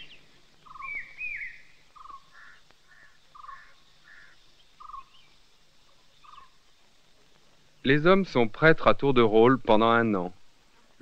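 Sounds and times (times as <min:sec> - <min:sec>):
birds singing trills and chirps: 0:00.0 - 0:08.1.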